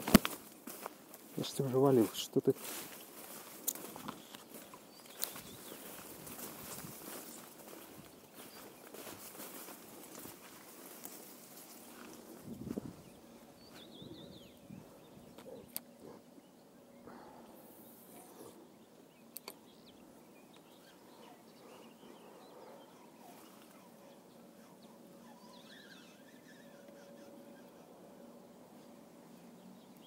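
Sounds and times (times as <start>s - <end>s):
faint bird calls: 1.3s - 30.0s
sharp clicks: 19.3s - 19.6s.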